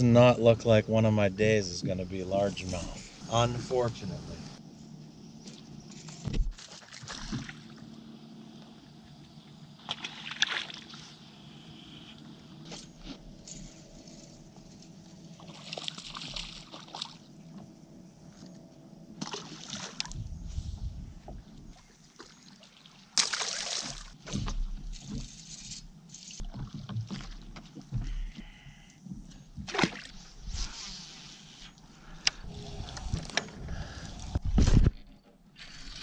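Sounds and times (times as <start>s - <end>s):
water sloshing and splashing: 5.4s - 11.4s, 12.6s - 18.5s, 19.2s - 36.0s.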